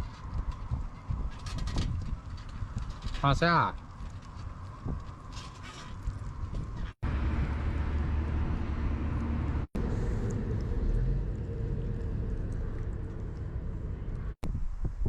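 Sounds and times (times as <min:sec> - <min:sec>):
wind noise: 0:00.0 - 0:15.0
van road and engine rumble: 0:06.3 - 0:14.4.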